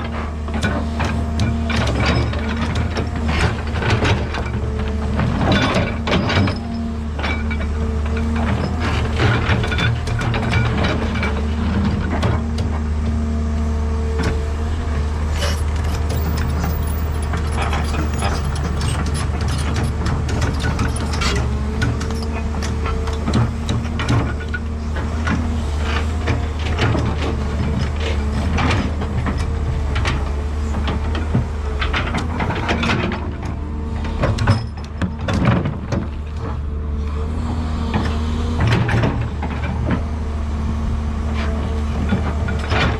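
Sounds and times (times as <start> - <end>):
excavator diesel engine running: 0.0 - 42.9
clanks and knocks: 15.4 - 36.7.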